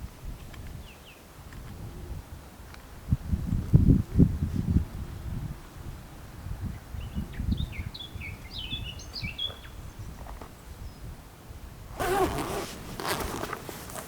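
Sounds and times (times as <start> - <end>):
rustling and handling noise: 12.0 - 14.0.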